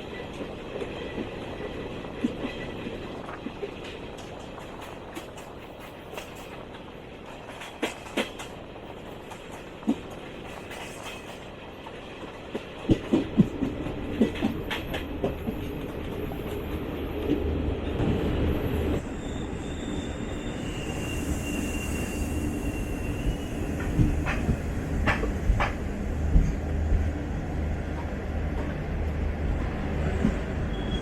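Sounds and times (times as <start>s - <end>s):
train rumble: 0.0s - 31.0s
train wheels clacking: 2.2s - 18.2s, 20.5s - 27.2s
high wheel squeal: 18.6s - 24.4s, 30.6s - 31.0s.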